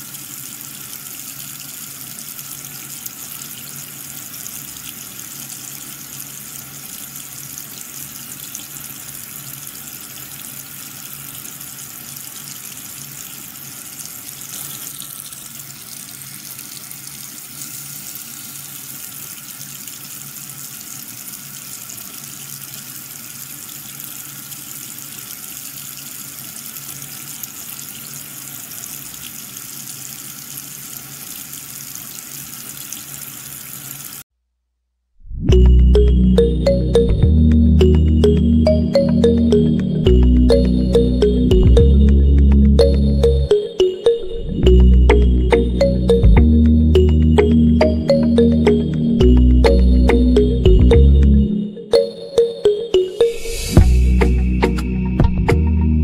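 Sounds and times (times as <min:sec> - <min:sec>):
water running and splashing: 0:00.0 - 0:34.2
low pump hum: 0:35.5 - 0:43.5, 0:44.3 - 0:51.5.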